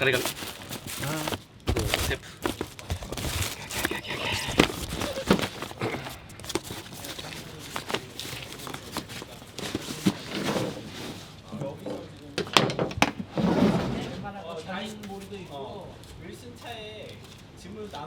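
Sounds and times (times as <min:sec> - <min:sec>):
rustling of gear: 0:00.0 - 0:11.5.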